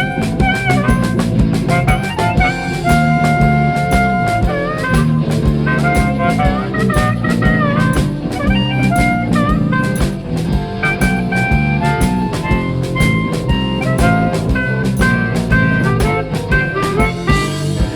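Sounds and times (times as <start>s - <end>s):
blues band playing: 0.0s - 17.9s
lead guitar bending notes: 0.0s - 17.9s.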